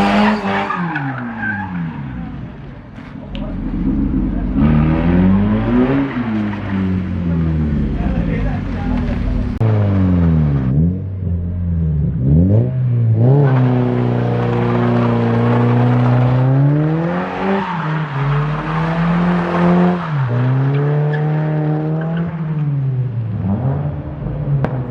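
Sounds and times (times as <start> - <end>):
car engine revving hard: 0.0 - 0.8, 3.6 - 11.2.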